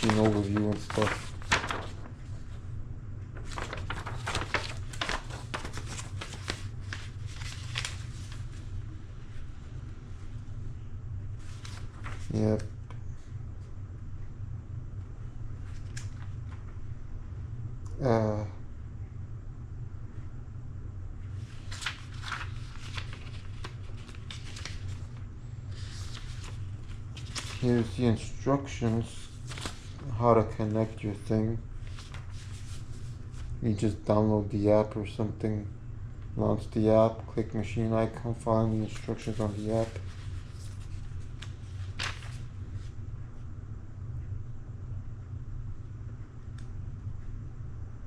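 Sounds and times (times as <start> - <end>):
paper pages rustling: 0.0 - 2.6, 3.4 - 9.5, 11.4 - 13.3, 15.6 - 16.7, 21.4 - 31.2, 31.8 - 33.6, 38.7 - 43.0
steady low hum: 0.0 - 48.0.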